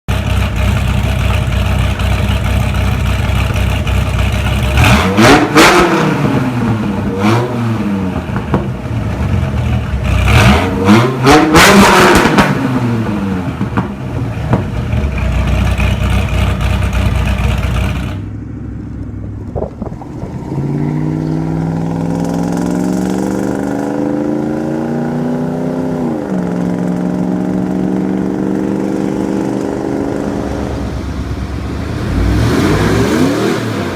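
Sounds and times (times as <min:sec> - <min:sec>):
engine exhaust revving: 0:00.1 - 0:18.3, 0:20.2 - 0:33.9
car exhaust idling with revs: 0:00.1 - 0:20.2.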